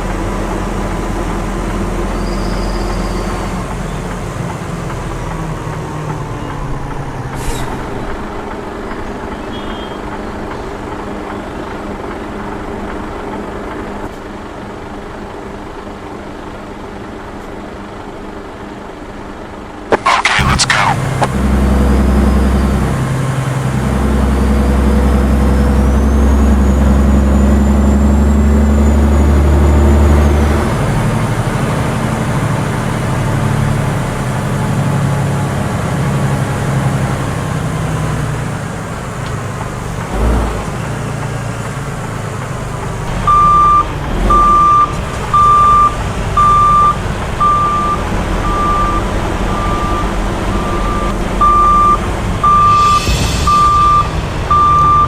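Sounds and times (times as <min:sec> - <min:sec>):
truck engine running: 0:00.0 - 0:55.0
reversing beeper: 0:09.1 - 0:10.2, 0:19.9 - 0:21.3, 0:43.2 - 0:55.0.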